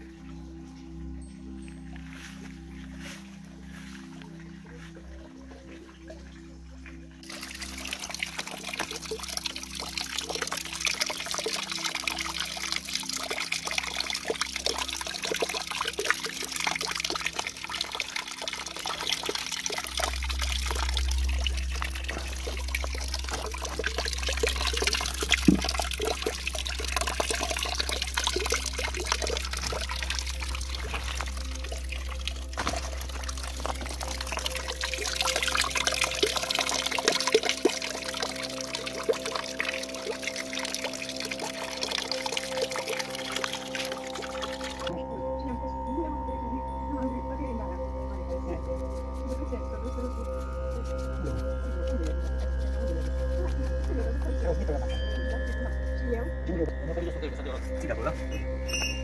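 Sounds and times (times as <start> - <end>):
water pouring and trickling: 0.0 - 59.0
small water splashes: 7.2 - 44.9
low steady rumble: 7.2 - 59.0.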